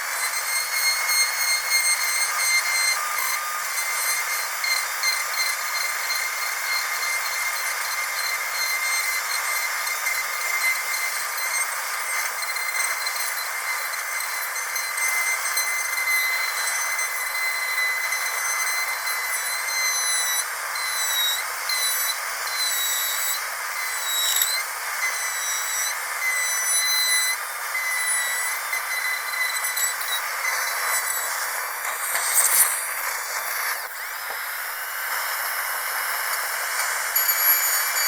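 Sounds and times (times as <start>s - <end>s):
dental drill whining: 0.0s - 38.0s
hissing burst: 28.5s - 37.2s.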